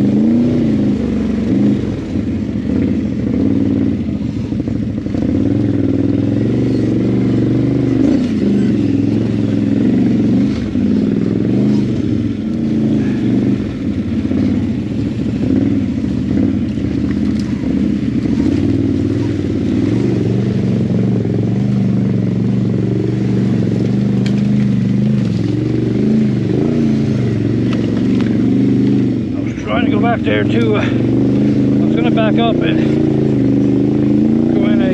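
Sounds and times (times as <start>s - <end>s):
atv engine revving: 0.0s - 34.9s.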